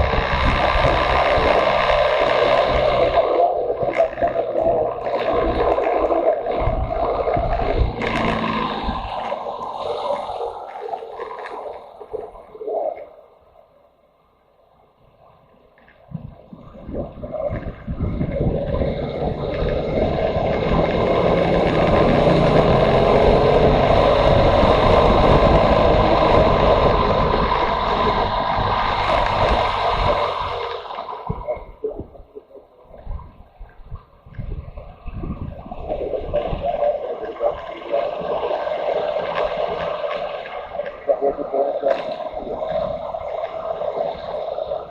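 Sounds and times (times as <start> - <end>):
motorcycle engine: 0.0 - 3.2, 6.6 - 9.7, 18.2 - 30.9
wind buffeting microphone: 0.0 - 10.8, 16.0 - 44.9.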